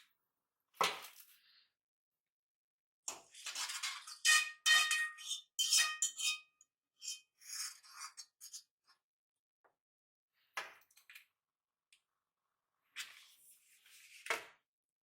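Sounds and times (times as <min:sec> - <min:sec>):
dishes and utensils clattering: 0:03.4 - 0:06.5.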